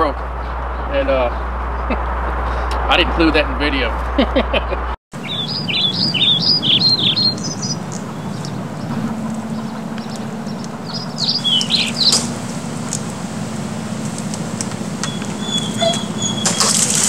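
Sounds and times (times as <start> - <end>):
steady low hum: 5.2 - 16.4
songbird chirping: 5.2 - 17.0.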